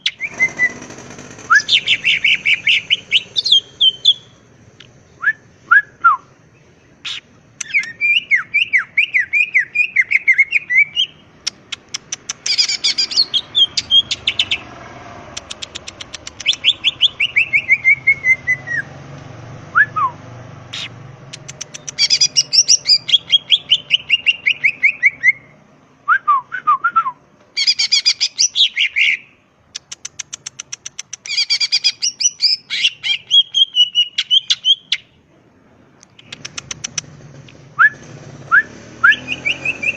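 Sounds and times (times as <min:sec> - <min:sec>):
bird singing whistled notes: 0:00.0 - 0:00.8, 0:01.4 - 0:04.4, 0:05.1 - 0:11.6, 0:12.4 - 0:14.6, 0:16.2 - 0:18.9, 0:21.7 - 0:29.4, 0:31.2 - 0:35.2, 0:37.8 - 0:39.9
bird rattling clicks: 0:11.5 - 0:12.6, 0:15.3 - 0:16.7, 0:21.3 - 0:22.2, 0:29.8 - 0:31.3, 0:36.0 - 0:37.1.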